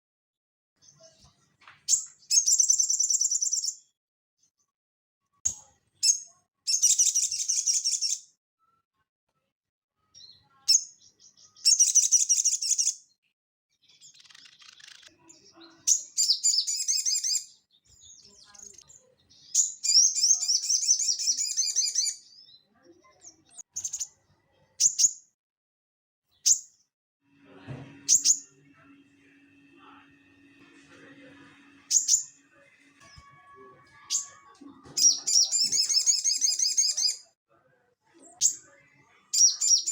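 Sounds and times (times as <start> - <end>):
songbird buzzy chattering song: 1.9 - 3.8, 5.5 - 8.2, 10.7 - 13.0, 13.9 - 22.4, 31.9 - 32.4, 35.0 - 37.2, 39.3 - 39.9.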